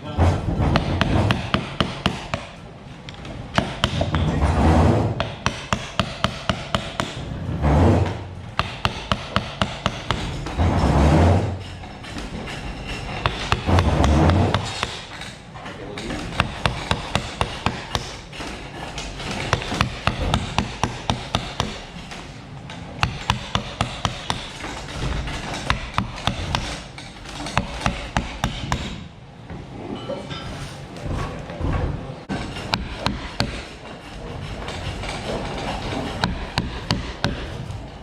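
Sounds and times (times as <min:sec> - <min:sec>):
mallet knocking on wood: 0:00.2 - 0:02.6, 0:03.5 - 0:15.4, 0:16.0 - 0:18.6, 0:19.2 - 0:22.2, 0:23.0 - 0:29.0, 0:32.3 - 0:33.8, 0:34.8 - 0:37.6.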